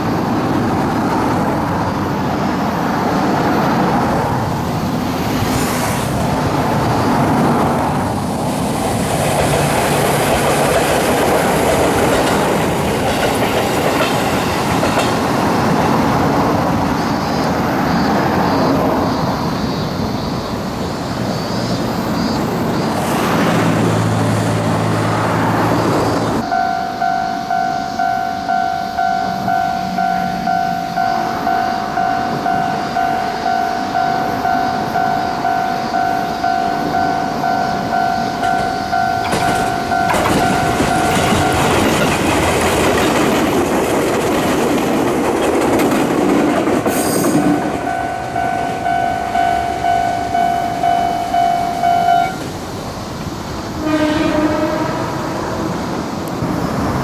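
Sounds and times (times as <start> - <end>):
train wheels clacking: 6.2 - 19.0, 22.1 - 57.0
level crossing bell ringing: 26.4 - 42.1, 47.4 - 52.6.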